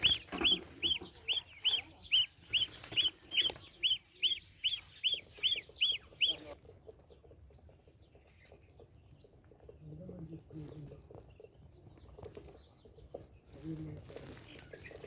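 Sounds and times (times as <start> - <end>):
gosling peeping: 0.0 - 9.4.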